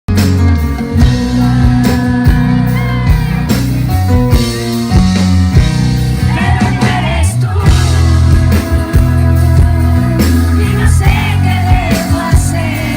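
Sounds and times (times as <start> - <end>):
band playing rock song: 0.1 - 12.9
person singing: 0.9 - 3.7, 6.2 - 12.9.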